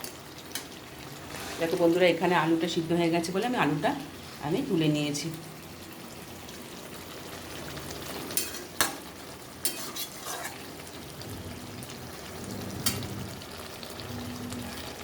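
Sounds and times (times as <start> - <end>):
curry sizzling in a pan: 0.0 - 15.0
spatula scraping a pan: 0.5 - 1.9, 9.6 - 10.9, 12.8 - 13.2.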